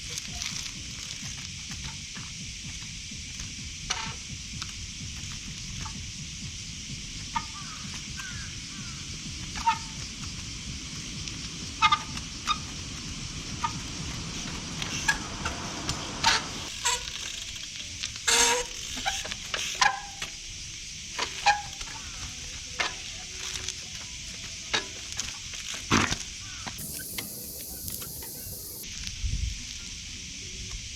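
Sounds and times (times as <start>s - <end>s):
steady background hiss: 4.4s - 25.8s, 26.8s - 28.8s
brakes squealing: 7.2s - 20.2s, 26.8s - 28.8s.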